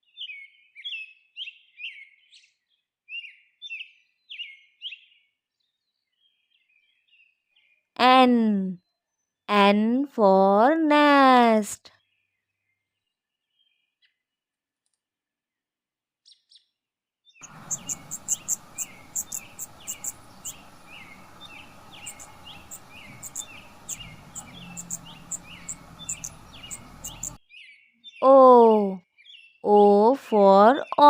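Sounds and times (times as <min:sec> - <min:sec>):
faint hiss: 0:17.4 - 0:27.4
small bird chirping: 0:17.4 - 0:27.8.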